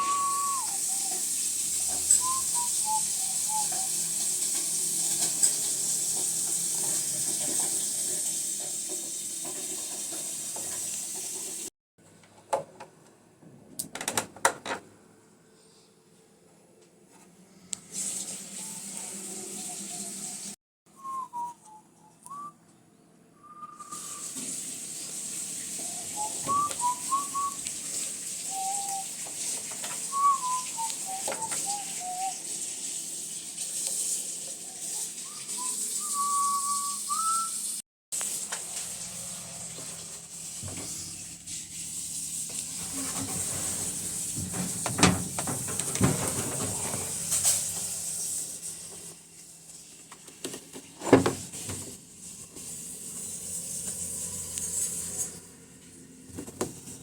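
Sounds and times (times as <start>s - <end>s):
whistled notes and pitch glides: 0.0s - 1.2s, 2.1s - 4.1s, 20.9s - 22.6s, 23.4s - 24.3s, 25.8s - 27.7s, 28.5s - 29.2s, 30.0s - 32.4s, 35.2s - 37.8s.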